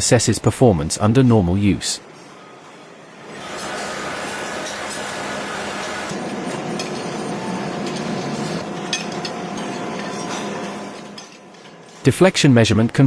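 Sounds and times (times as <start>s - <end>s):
factory machinery running: 0.0s - 13.0s
light metallic clinks: 6.1s - 12.1s.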